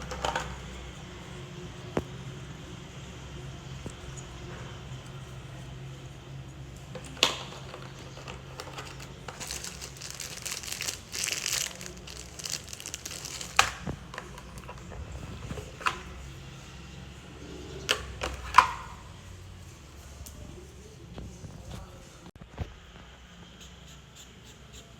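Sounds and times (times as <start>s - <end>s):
plastic packaging crinkling: 7.0s - 16.0s.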